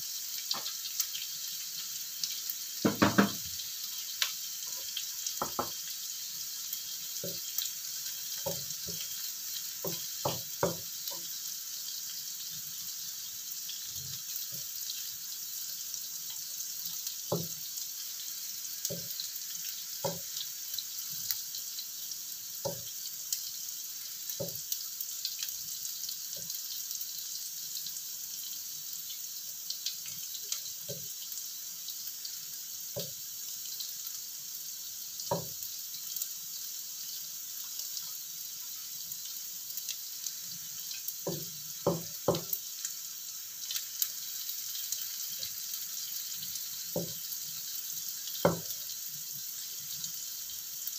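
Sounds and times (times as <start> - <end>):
food sizzling in oil: 0.0 - 50.9
wooden spatula knocking on pan: 2.8 - 3.5, 5.4 - 5.8, 9.8 - 10.9, 17.3 - 17.5, 20.0 - 20.3, 22.7 - 22.9, 35.3 - 35.5, 41.3 - 42.6, 48.4 - 48.7.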